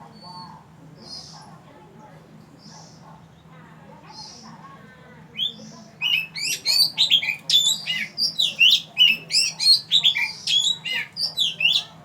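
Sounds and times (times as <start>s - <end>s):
bird singing whistled notes: 5.4s - 11.9s.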